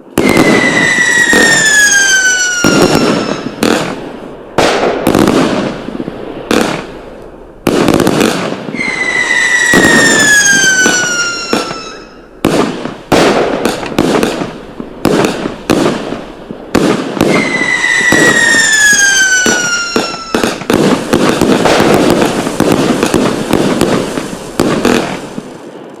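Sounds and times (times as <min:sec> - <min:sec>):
fireworks bangs and crackling: 0:00.0 - 0:26.0
firework whistles falling in pitch: 0:00.2 - 0:03.8, 0:08.7 - 0:12.5, 0:17.2 - 0:20.7.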